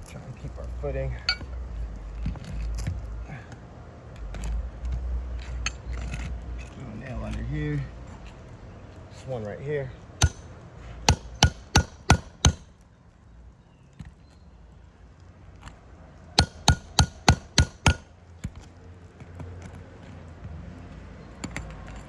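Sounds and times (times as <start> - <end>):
hammer striking metal nail puller: 10.2 - 10.5, 11.1 - 12.7, 16.4 - 18.1.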